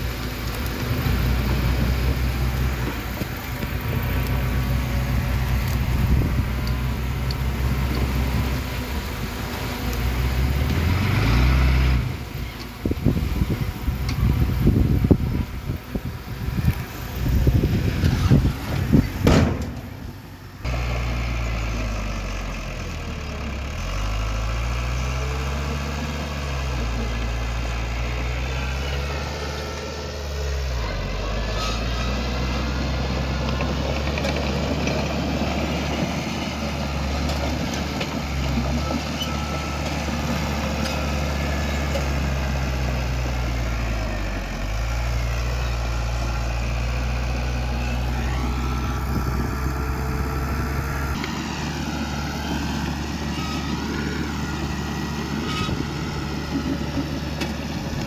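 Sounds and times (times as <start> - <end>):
heavy machinery diesel engine: 0.0 - 58.0
rough uneven noise: 44.5 - 58.0.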